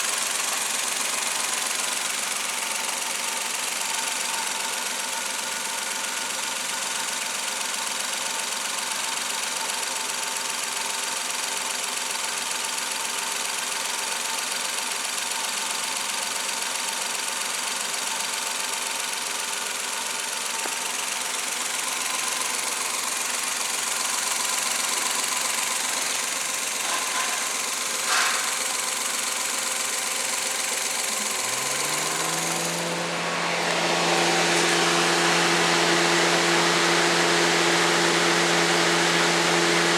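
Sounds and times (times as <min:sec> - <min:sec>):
car engine idling: 0:00.0 - 0:39.9
motor whine: 0:31.1 - 0:39.9.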